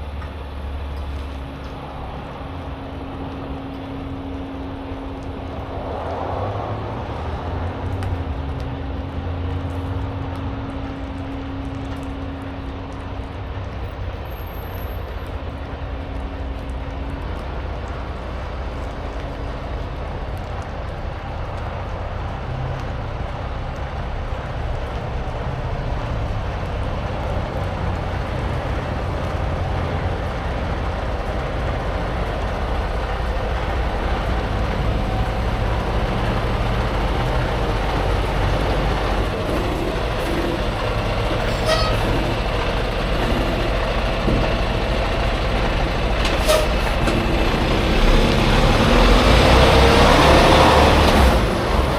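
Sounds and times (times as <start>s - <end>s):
road noise: 0.0s - 51.9s
truck diesel engine droning: 28.0s - 51.9s.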